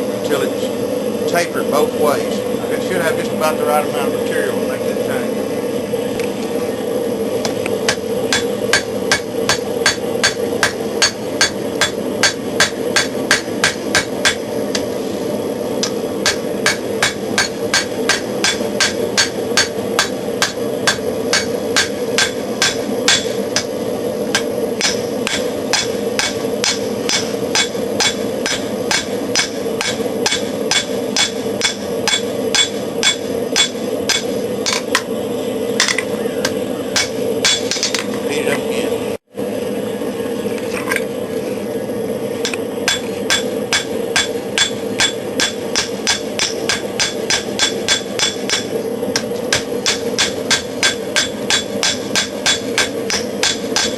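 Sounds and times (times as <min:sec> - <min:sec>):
gas forge drone: 0:00.0 - 0:53.9
hammer striking steel on anvil: 0:07.9 - 0:14.5, 0:15.8 - 0:23.7, 0:24.3 - 0:35.1, 0:36.9 - 0:38.1, 0:42.4 - 0:53.9.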